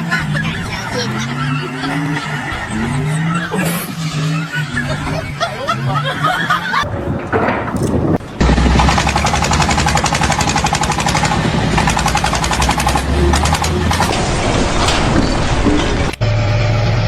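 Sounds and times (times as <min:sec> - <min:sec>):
voices: 0:00.0 - 0:16.2
deep rumble: 0:13.7 - 0:16.2.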